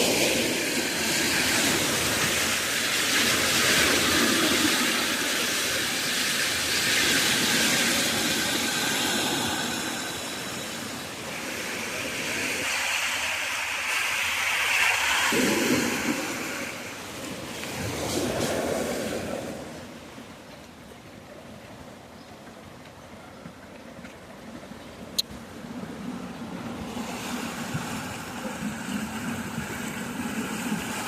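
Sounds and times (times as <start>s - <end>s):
river rushing in flood: 0.0s - 20.4s.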